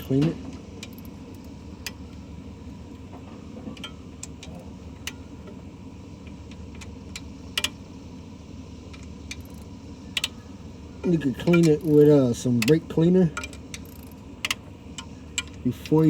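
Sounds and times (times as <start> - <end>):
tools and parts clicking: 3.6 - 5.6, 6.2 - 7.8, 8.9 - 10.4, 11.4 - 16.0.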